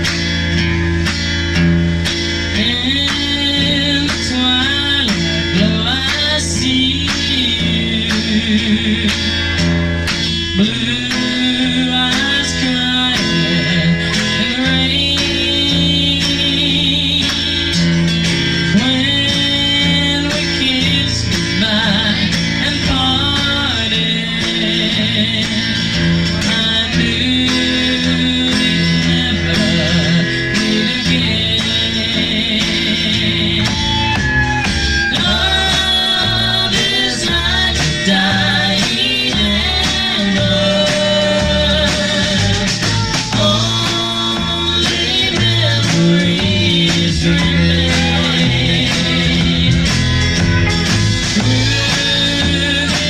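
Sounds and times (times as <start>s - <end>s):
band playing country song: 0.0s - 53.0s
guitar: 0.0s - 53.0s
drum beat: 29.6s - 53.0s.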